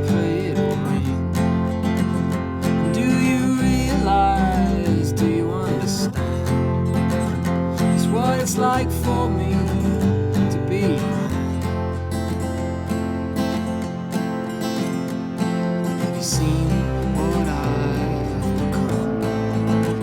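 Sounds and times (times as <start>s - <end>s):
strummed acoustic guitar: 0.0s - 20.0s
low bass notes: 3.4s - 7.5s, 16.4s - 20.0s.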